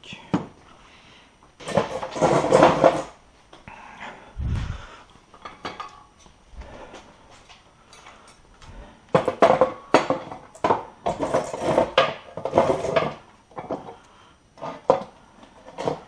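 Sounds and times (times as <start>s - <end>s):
hand tools and metal parts clanking: 5.3s - 6.3s, 7.3s - 8.4s, 9.1s - 14.0s.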